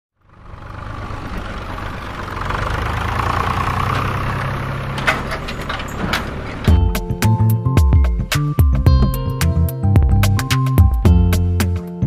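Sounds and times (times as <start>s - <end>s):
engine running steadily: 0.2s - 7.3s.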